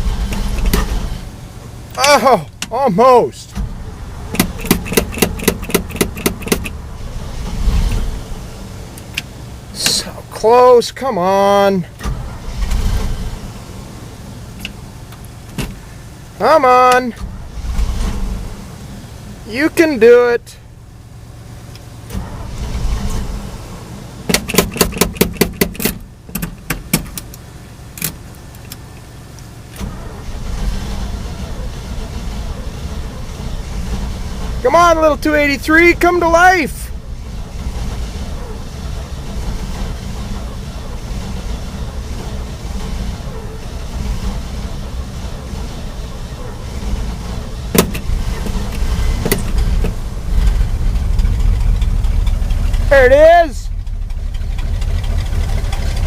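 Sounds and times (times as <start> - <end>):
engine sputtering pops: 0.0 - 2.8, 3.4 - 10.1, 11.9 - 13.6, 24.2 - 56.0
engine cranking: 0.0 - 10.7, 11.7 - 13.8, 21.7 - 56.0.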